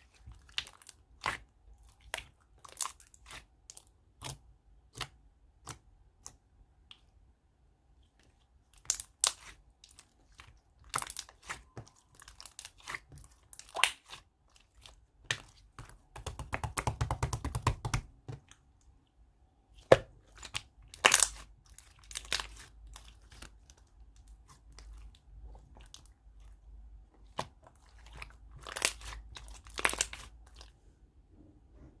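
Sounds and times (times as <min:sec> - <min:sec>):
fast crackling of slime: 0:08.8 - 0:18.6, 0:19.8 - 0:26.6, 0:27.2 - 0:30.7.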